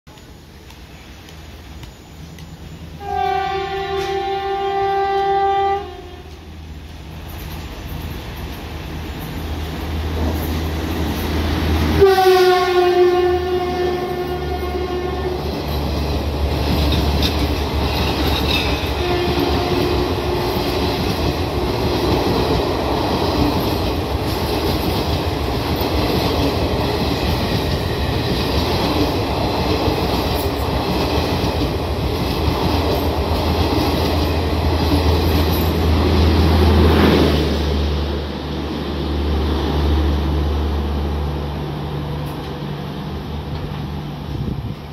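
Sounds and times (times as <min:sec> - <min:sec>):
locomotive horn: 0:03.0 - 0:06.5, 0:11.9 - 0:15.6, 0:18.7 - 0:20.8
train wheels clattering on rail: 0:03.7 - 0:04.4, 0:06.3 - 0:12.1, 0:15.4 - 0:37.5.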